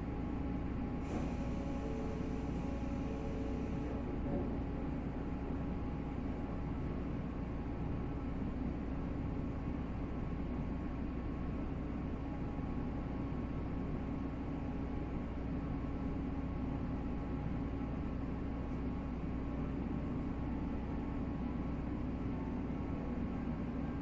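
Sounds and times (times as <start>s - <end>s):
train wheels rumbling on rails: 0.1s - 7.8s.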